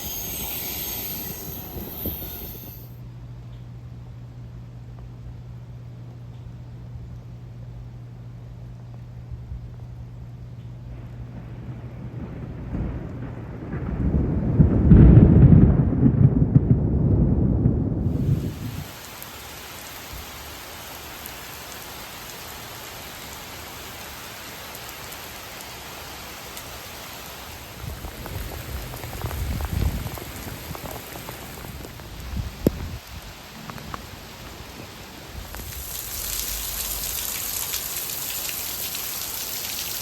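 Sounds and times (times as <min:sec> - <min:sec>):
heavy rain hissing: 0:00.0 - 0:03.0, 0:18.0 - 0:40.0
thunder rumbling: 0:00.0 - 0:03.0, 0:10.8 - 0:19.1, 0:27.4 - 0:40.0.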